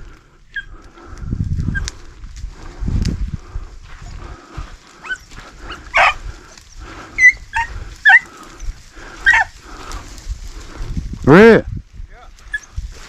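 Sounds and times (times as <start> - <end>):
dogs barking and yipping: 5.0 - 9.6, 12.5 - 12.8.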